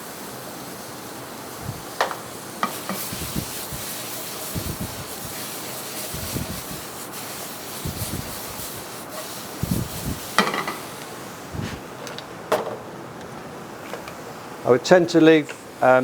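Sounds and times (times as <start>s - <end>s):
vegetables sizzling in oil: 0.0s - 11.6s
sharp knocks on pan: 2.0s - 3.0s, 10.4s - 10.9s
utensil scraping a pan: 2.6s - 11.1s.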